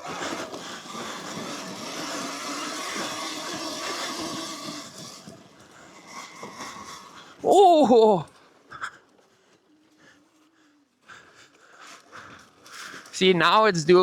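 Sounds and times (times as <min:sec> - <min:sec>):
dirt bike engine running: 0:00.0 - 0:08.2
rider shouting oh: 0:07.4 - 0:08.3.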